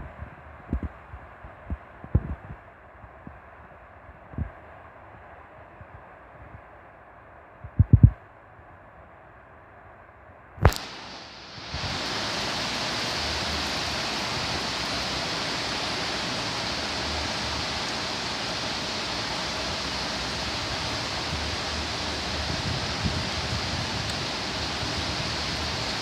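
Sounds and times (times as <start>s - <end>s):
wind gusts rumbling: 7.6s - 8.2s, 10.6s - 26.0s
heavy rain pouring: 10.6s - 26.0s.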